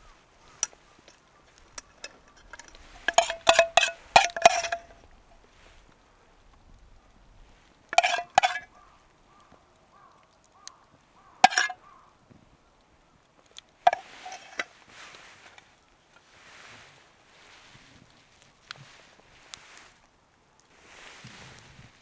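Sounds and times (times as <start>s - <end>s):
metal cookware clinking: 0.4s - 5.0s, 7.9s - 8.7s, 11.4s - 11.8s, 13.9s - 14.7s.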